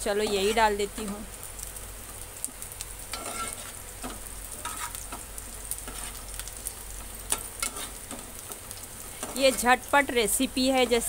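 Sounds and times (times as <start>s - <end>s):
onions sizzling in hot oil: 0.0s - 11.0s
steel ladle scraping a pan: 0.2s - 0.7s, 3.1s - 5.1s, 5.8s - 6.2s, 7.3s - 8.2s.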